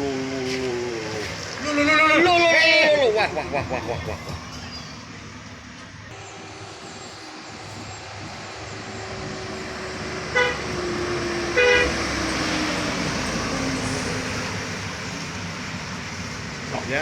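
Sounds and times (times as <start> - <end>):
passing road traffic: 0.0 - 17.0
engine drone falling in pitch: 3.0 - 16.9
vehicle horn tooting: 10.3 - 10.8, 11.5 - 12.0.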